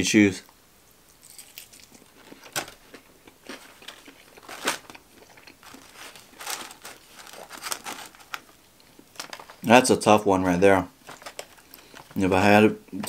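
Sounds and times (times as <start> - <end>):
crunchy chewing: 1.1 - 9.5
foam box crinkling: 3.5 - 9.7, 11.0 - 12.2.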